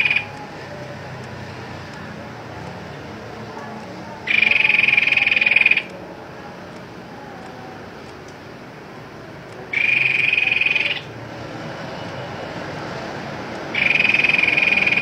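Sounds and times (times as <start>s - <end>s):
bird trilling call: 0.0s - 0.3s, 4.2s - 6.0s, 9.7s - 11.1s, 13.7s - 15.0s.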